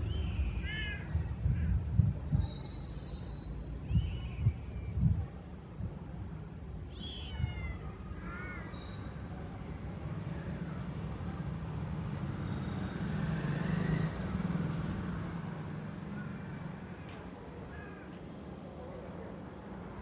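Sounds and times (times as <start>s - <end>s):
vehicle engine rumble passing: 10.0s - 17.1s.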